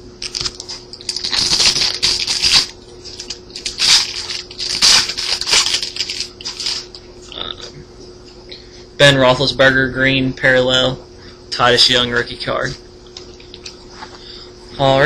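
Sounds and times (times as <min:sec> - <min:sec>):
trading cards rustling: 0:00.2 - 0:07.0.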